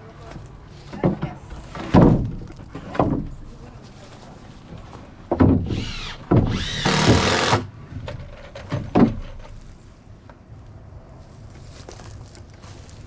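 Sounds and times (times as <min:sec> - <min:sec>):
power drill driving screws: 0:05.7 - 0:07.7.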